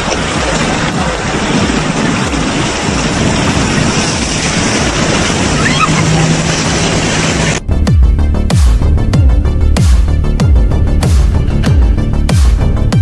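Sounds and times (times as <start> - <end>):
heavy rainstorm and floodwater: 0.0 - 7.7.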